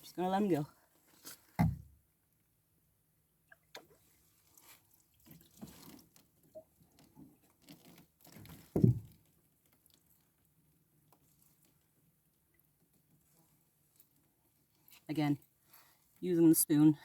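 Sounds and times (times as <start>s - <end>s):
sharp thump: 1.6s - 1.8s.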